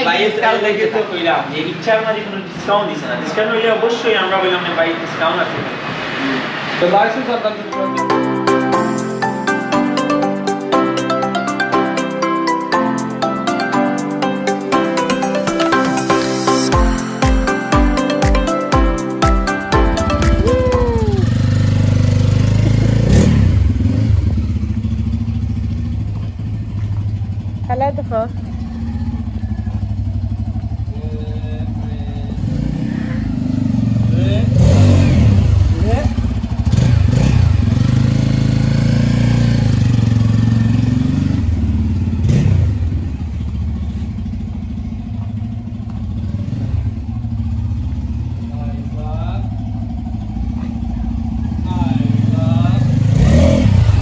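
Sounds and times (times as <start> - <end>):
motorcycle engine idling: 19.8 - 54.0.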